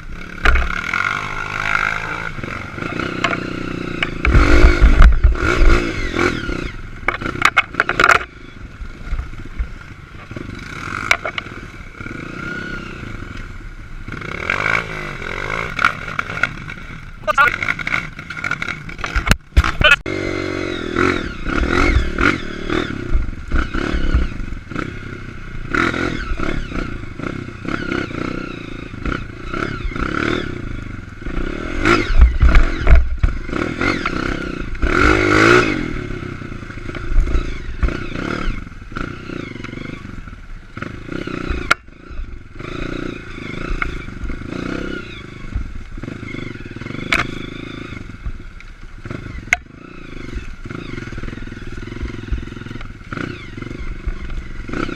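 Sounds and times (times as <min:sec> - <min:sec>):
dirt bike engine revving: 0:00.0 - 0:54.9
bike rattles and knocks: 0:00.2 - 0:06.3, 0:07.0 - 0:08.3, 0:09.0 - 0:11.6, 0:15.5 - 0:20.0, 0:31.2 - 0:35.6, 0:45.6 - 0:47.4.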